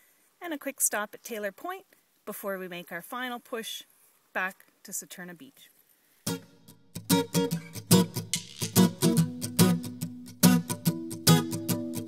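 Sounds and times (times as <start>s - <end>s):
acoustic guitar strumming: 6.3s - 12.0s.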